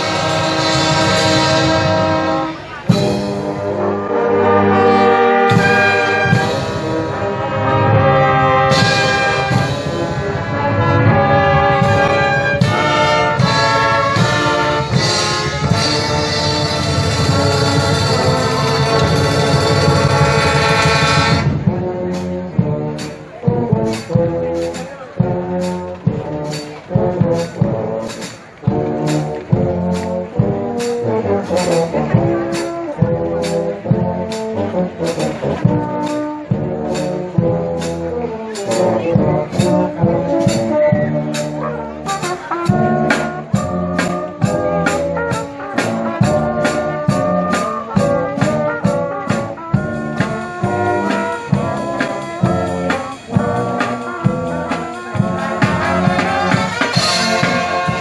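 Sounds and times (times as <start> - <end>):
brass section melody: 0.0 - 58.0
percussion strikes on the beat: 11.1 - 58.0.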